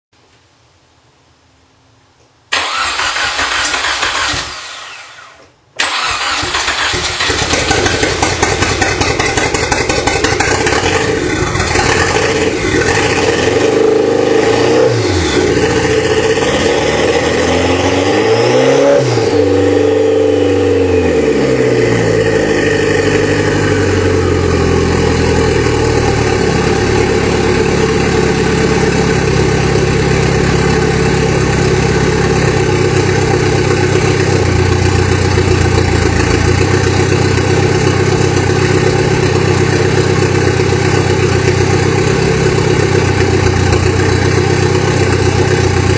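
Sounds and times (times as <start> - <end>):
car engine revving and idling: 2.6 - 45.9.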